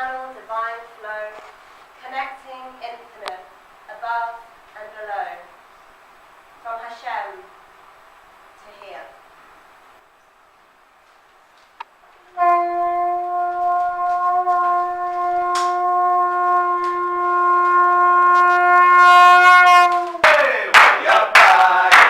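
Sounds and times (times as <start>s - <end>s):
horn blast: 12.2s - 20.4s
applause: 19.9s - 22.0s.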